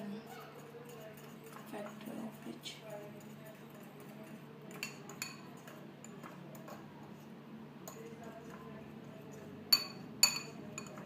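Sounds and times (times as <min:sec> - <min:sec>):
fork clinking in bowl: 0:04.7 - 0:06.8, 0:09.7 - 0:11.0.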